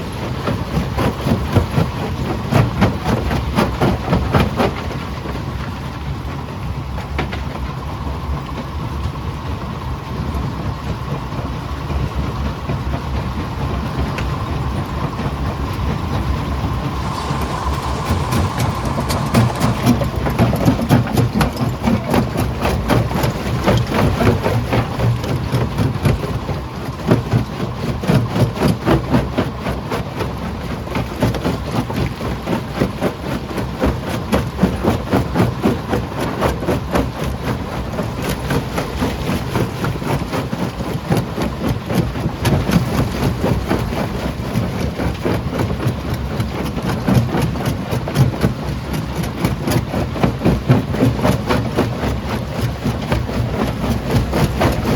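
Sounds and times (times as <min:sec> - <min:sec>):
heavy machinery rumble: 0:07.0 - 0:28.9, 0:30.7 - 0:46.4.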